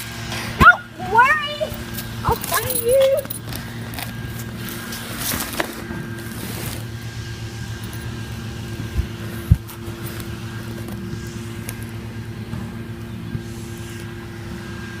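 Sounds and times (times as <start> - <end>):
low mechanical hum: 0.0 - 15.0
dull thumps: 8.7 - 10.2.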